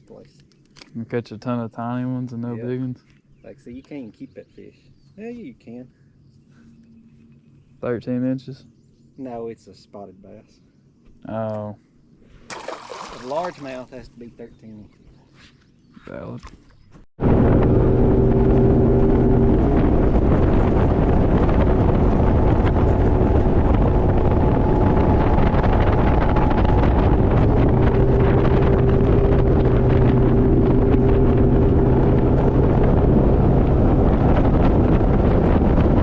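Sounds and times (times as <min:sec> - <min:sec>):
motorboat engine running: 0:17.2 - 0:36.0
wind blowing across microphone: 0:17.2 - 0:36.0.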